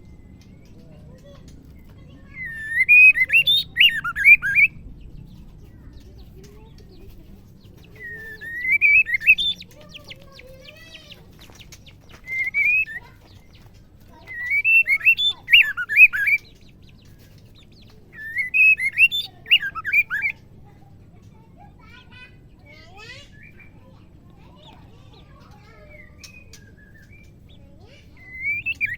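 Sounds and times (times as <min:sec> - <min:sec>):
bird warbling whistles: 0:02.4 - 0:04.8, 0:08.1 - 0:09.6, 0:12.2 - 0:13.0, 0:18.2 - 0:20.4, 0:28.2 - 0:28.9.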